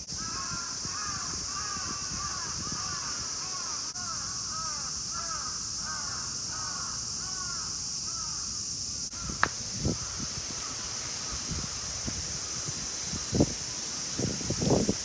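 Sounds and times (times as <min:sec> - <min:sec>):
cicadas droning: 0:00.0 - 0:15.0
bird calling: 0:09.1 - 0:15.0
short knocks: 0:09.2 - 0:10.8.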